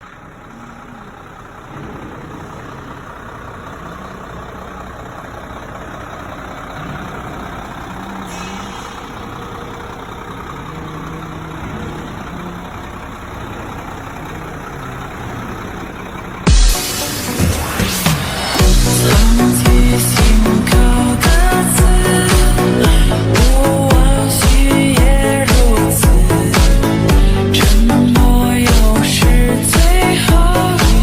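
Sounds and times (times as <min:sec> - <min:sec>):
heavy truck engine running: 0:00.0 - 0:31.0
brief hiss: 0:08.3 - 0:09.0.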